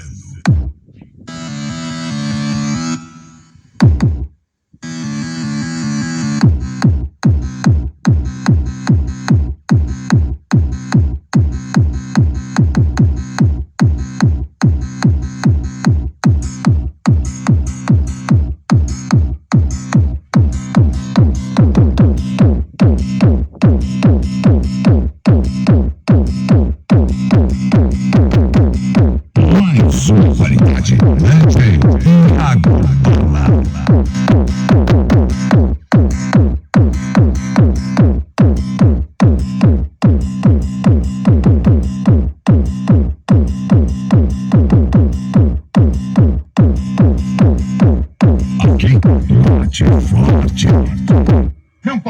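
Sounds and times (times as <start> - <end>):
electronic dance music: 29.4 - 39.8, 47.0 - 51.6.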